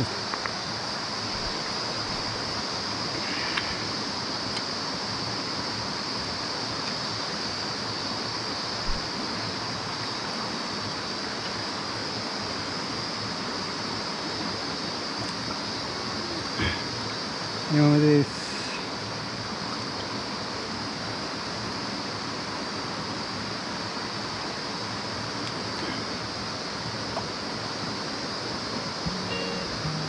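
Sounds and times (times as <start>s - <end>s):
high-pitched hiss: 0.0s - 30.0s
stream water running: 0.0s - 30.0s.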